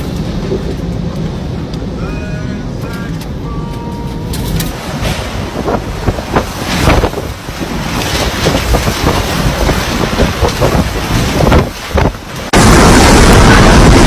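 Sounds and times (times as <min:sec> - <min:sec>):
strong wind buffeting microphone: 0:04.5 - 0:14.0.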